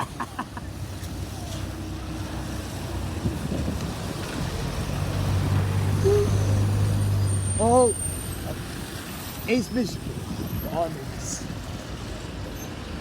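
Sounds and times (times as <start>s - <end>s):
diesel engine droning: 4.4s - 9.2s.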